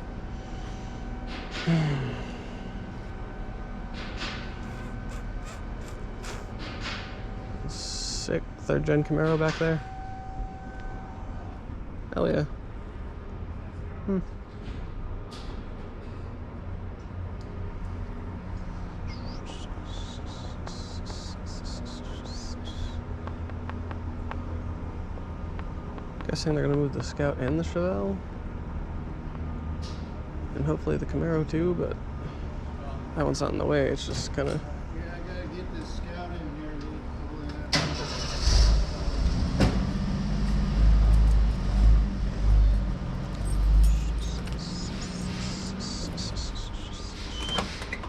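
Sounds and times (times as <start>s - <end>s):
vehicle engine idling: 17.9s - 28.5s, 37.1s - 47.8s
car engine rumbling: 37.9s - 47.6s
short high chirps: 43.4s - 47.6s.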